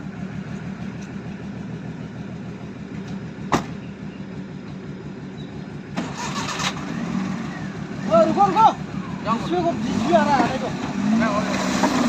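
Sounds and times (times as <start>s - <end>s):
engine running at low revs: 0.0s - 12.0s
sharp knock: 3.5s - 3.8s.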